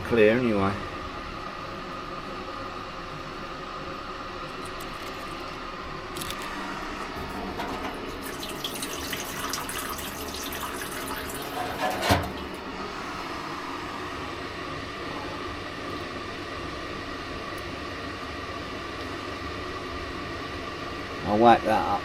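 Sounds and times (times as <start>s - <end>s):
pump humming: 0.0s - 22.0s
liquid pouring and splashing: 7.2s - 12.6s.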